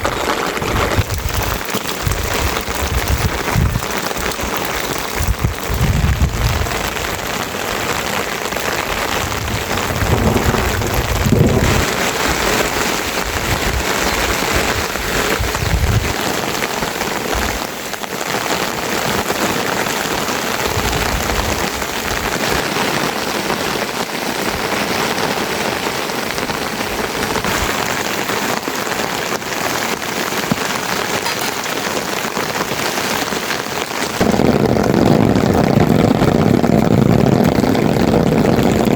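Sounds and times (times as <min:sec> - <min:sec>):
low rumbles: 0:00.0 - 0:12.6
steady rain pouring: 0:00.0 - 0:38.9.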